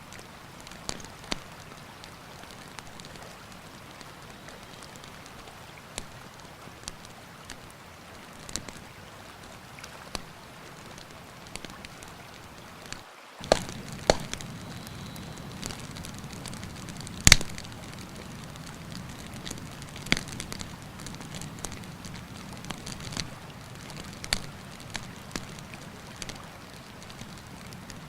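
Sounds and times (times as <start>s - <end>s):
campfire crackling and popping: 0.0s - 28.0s
river water rushing: 0.0s - 28.0s.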